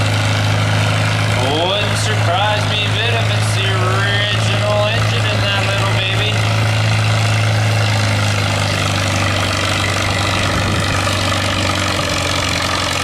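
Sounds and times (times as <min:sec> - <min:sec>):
tractor engine running under load: 0:00.0 - 0:13.0.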